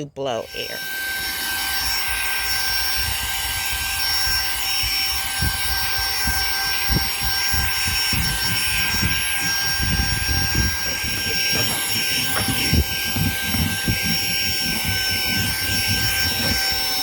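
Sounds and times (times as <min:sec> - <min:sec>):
handheld vacuum motor whining: 0:00.3 - 0:17.0
low bumps: 0:06.2 - 0:17.0.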